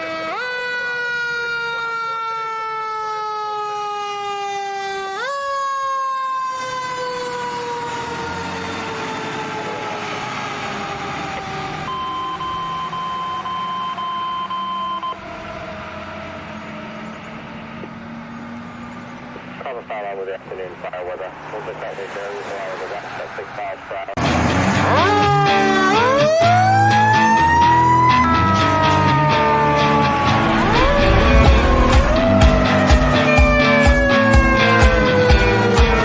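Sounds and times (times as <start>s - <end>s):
fire engine siren: 0.0s - 36.0s
steady high tone: 27.1s - 34.9s.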